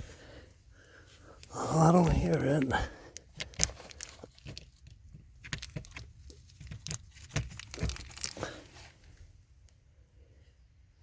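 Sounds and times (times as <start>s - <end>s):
crinkling and rustling: 1.1s - 9.4s.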